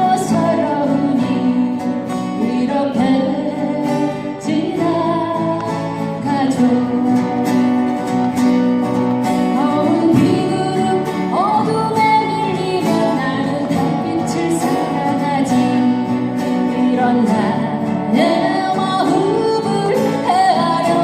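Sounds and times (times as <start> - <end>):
acoustic guitar-led folk music: 0.0 - 21.0.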